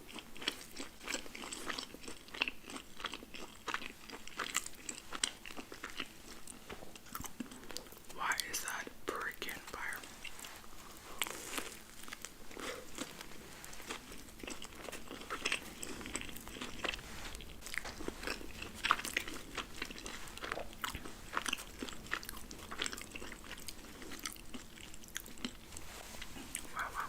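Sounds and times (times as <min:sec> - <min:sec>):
chewing and crunching food: 0:00.0 - 0:27.0.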